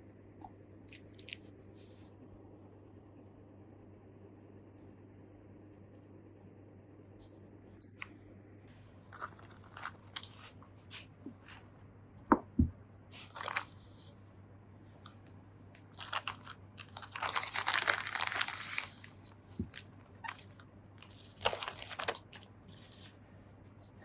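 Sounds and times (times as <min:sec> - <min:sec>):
crinkly rustle: 0:09.1 - 0:11.8, 0:13.2 - 0:14.2, 0:15.9 - 0:23.2.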